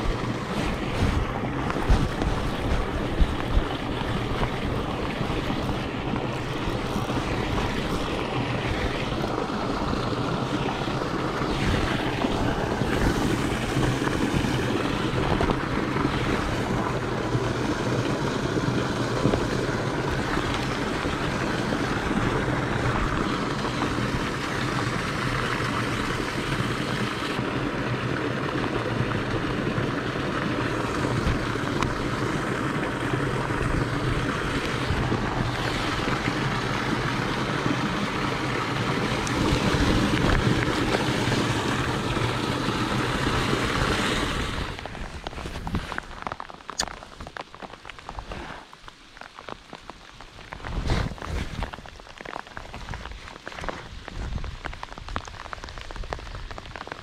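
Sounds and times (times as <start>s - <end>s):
wind buffeting microphone: 0.0s - 26.6s, 30.7s - 46.3s
rain on a pond: 0.0s - 57.0s
rain on a rain jacket: 0.0s - 57.0s.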